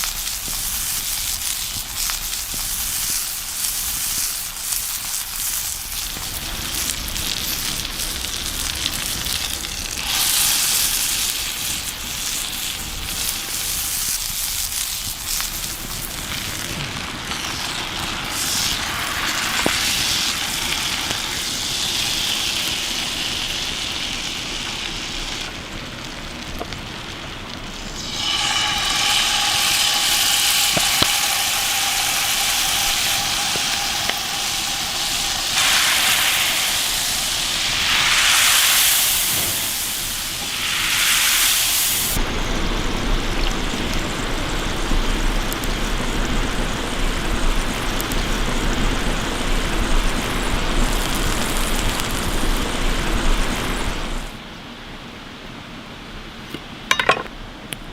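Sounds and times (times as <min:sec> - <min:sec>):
campfire cooking sizzling: 0:00.0 - 0:54.6.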